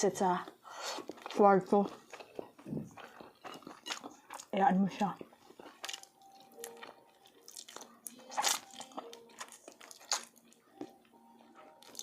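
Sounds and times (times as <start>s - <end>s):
person biting and chewing: 2.0s - 4.5s, 5.6s - 10.9s, 11.8s - 12.0s.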